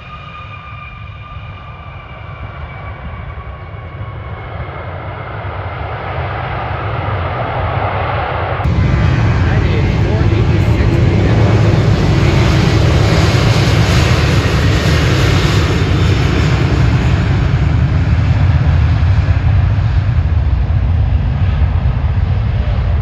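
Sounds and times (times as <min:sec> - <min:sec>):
jet plane passing close: 0:00.0 - 0:23.0.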